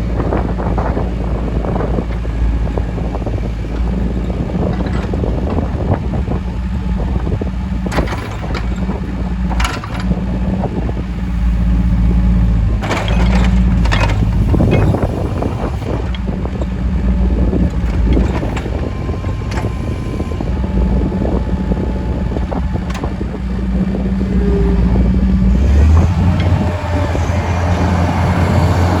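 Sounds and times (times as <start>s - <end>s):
diesel engine running: 0.0s - 29.0s
metallic clanks and knocks: 12.8s - 15.1s.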